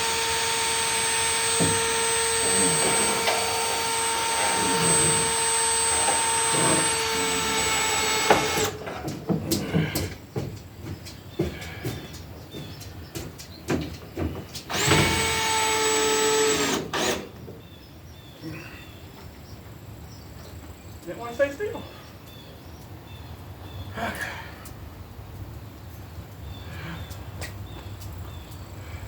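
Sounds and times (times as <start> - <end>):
power tool motor whining: 0.0 - 8.8, 14.7 - 17.4.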